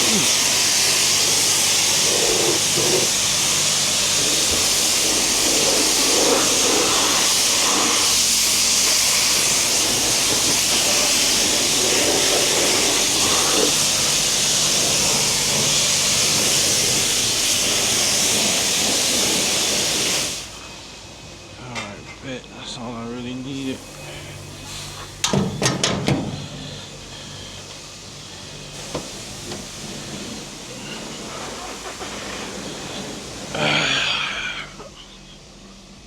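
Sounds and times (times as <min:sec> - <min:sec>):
pressure washer spraying water: 0:00.0 - 0:20.5, 0:27.8 - 0:34.5.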